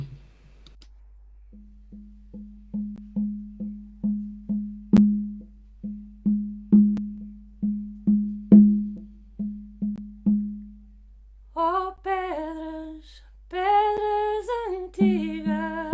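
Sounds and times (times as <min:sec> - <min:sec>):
hand drum beating low: 0:01.5 - 0:10.9, 0:15.0 - 0:15.9.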